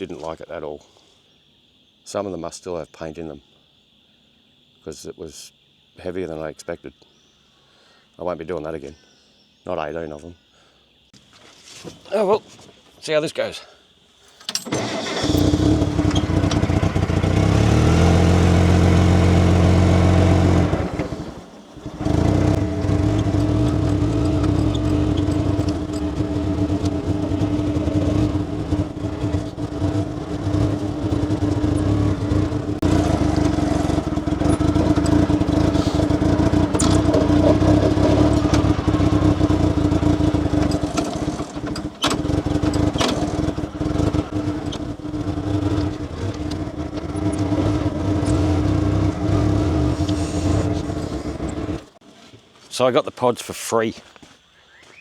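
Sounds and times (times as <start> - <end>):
road noise: 14.6 - 52.0
vehicle engine droning: 14.7 - 52.0.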